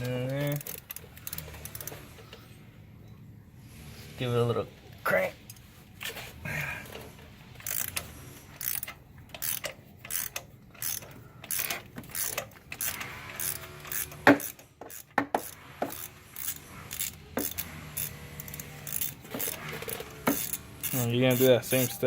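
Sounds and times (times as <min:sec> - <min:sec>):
socket ratchet clicking: 0:00.0 - 0:02.0, 0:07.6 - 0:22.0.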